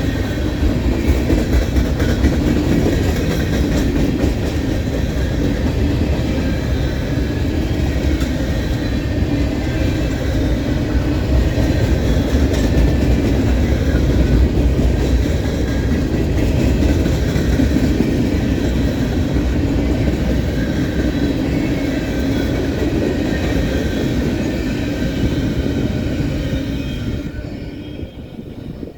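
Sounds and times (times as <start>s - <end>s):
train wheels rumbling on rail: 0.0s - 28.9s.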